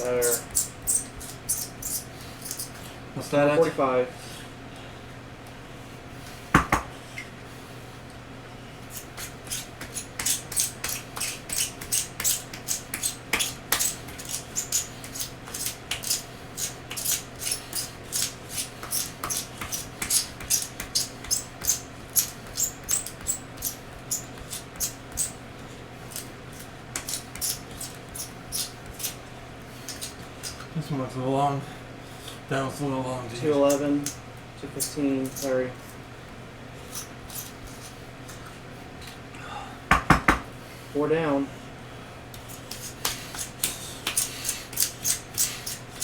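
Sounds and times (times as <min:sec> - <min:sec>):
low fan hum: 0:00.0 - 0:46.0
sharp knock: 0:06.6 - 0:06.9, 0:39.9 - 0:40.5.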